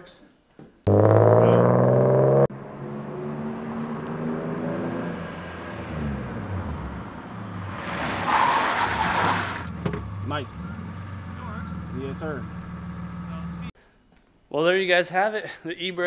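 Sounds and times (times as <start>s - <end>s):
car engine revving: 0.9s - 13.7s
tyres scrubbing on asphalt: 7.7s - 9.8s.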